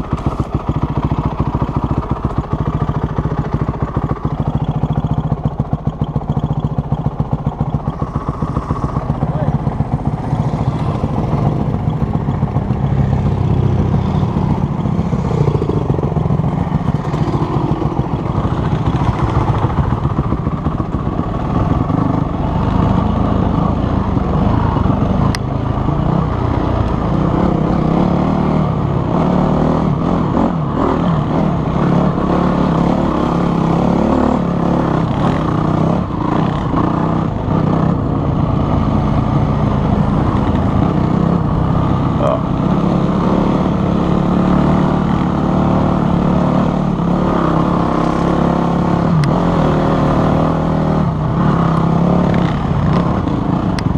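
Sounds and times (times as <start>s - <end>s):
dirt bike engine revving: 26.0s - 53.8s.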